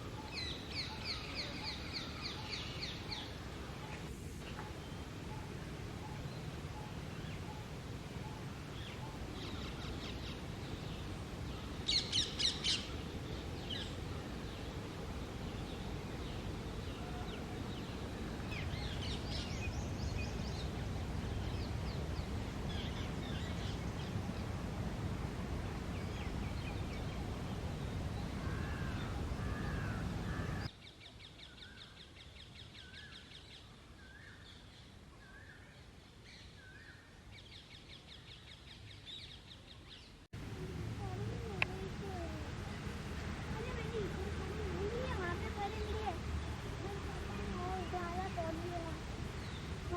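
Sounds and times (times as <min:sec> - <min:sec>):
parakeets and birds calling: 0:11.6 - 0:24.2, 0:25.9 - 0:30.7.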